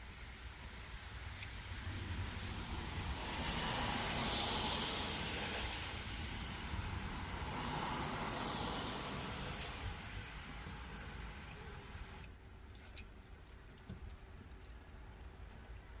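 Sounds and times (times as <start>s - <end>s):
tyres hissing on wet road: 0.0s - 12.3s.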